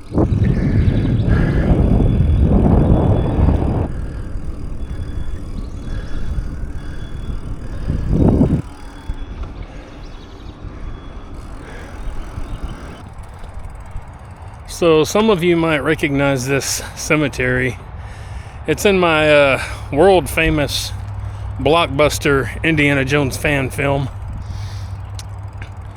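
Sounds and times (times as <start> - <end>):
wind buffeting microphone: 0.0 - 25.9.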